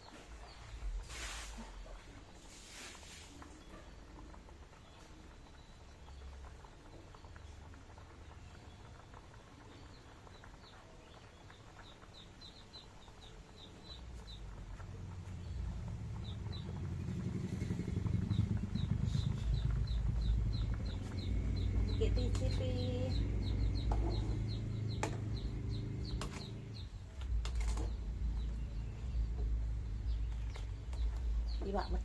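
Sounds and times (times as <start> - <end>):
small bird chirping: 4.8 - 32.0
low rumble: 14.2 - 32.0.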